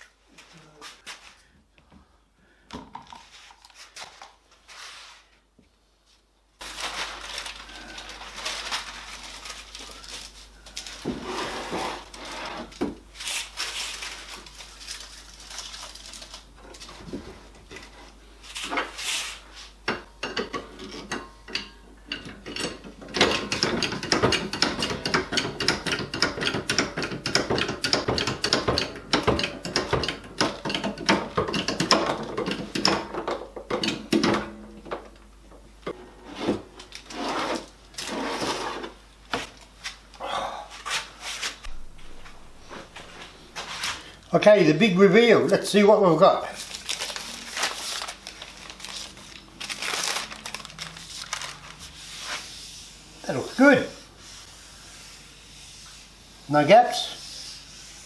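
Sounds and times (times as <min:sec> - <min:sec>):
tools and wood clattering: 0:19.9 - 0:35.2.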